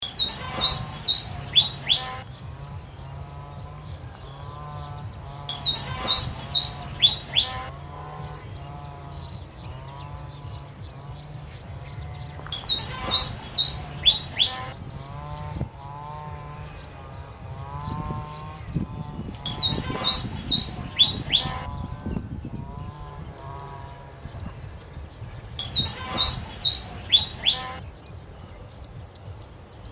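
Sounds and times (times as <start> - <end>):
steady high hiss: 0.0 - 2.2, 25.6 - 27.8
small bird chirping: 0.0 - 3.4, 4.4 - 14.8, 17.6 - 29.4.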